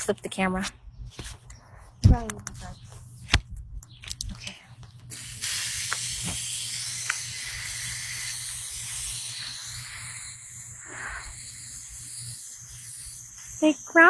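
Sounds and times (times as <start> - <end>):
water spraying from a hose: 5.1 - 14.0.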